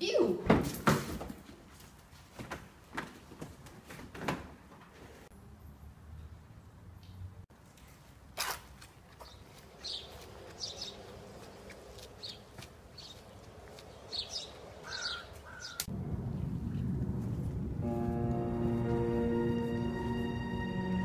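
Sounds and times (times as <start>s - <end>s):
birds calling: 9.2s - 15.9s
low rumble: 15.9s - 20.2s.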